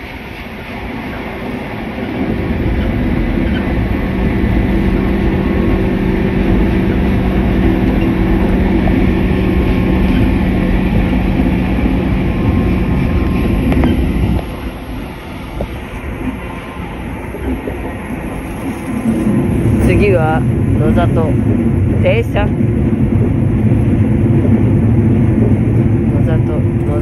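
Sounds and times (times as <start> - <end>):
electric train drone: 0.0 - 27.0
low hum: 0.0 - 27.0.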